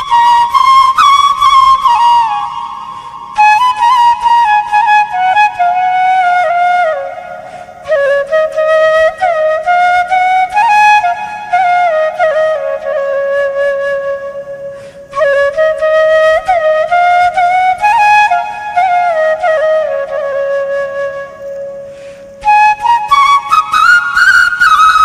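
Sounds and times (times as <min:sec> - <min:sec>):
flute melody: 0:00.0 - 0:25.0.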